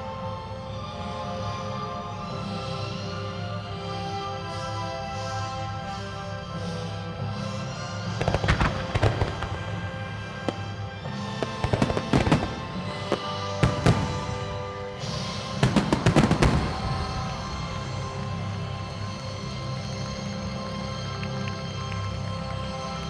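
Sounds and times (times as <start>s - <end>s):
music from loudspeakers: 0.0s - 23.0s
fireworks bursting bangs and cracks: 8.0s - 19.8s.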